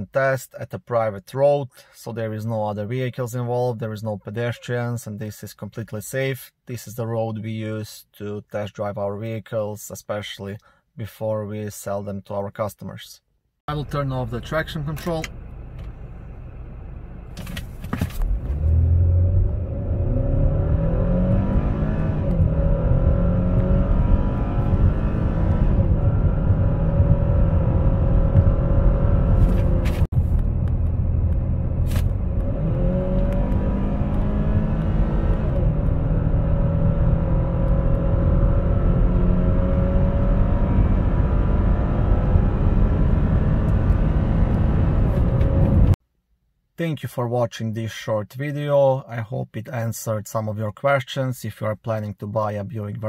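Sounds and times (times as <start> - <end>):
car engine accelerating hard: 18.2 - 46.0.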